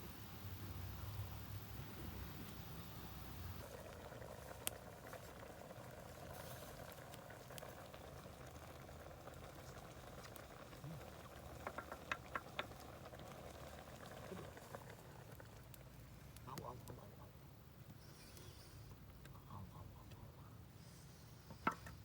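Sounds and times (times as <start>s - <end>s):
stew bubbling in a pot: 0.0s - 17.2s.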